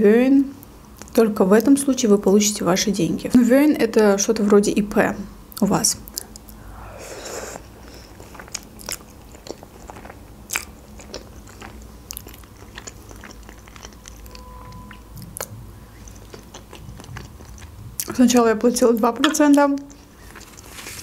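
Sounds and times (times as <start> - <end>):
person chewing food: 6.1 - 18.2, 19.2 - 21.0.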